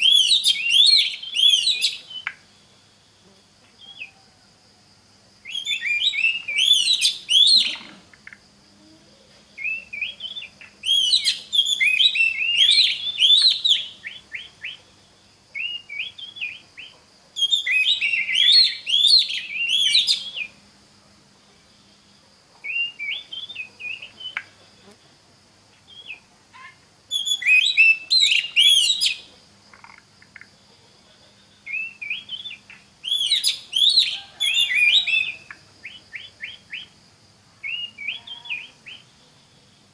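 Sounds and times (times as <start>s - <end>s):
bird singing whistled phrases: 0.0s - 2.4s, 5.4s - 7.9s, 9.6s - 14.8s, 15.6s - 20.6s, 22.6s - 24.5s, 27.1s - 29.3s, 31.7s - 36.9s, 37.6s - 39.0s.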